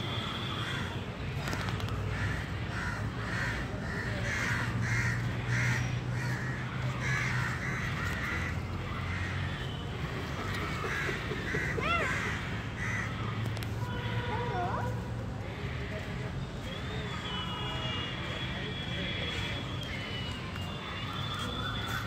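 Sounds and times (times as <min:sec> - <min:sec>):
birds calling: 0:00.0 - 0:13.3.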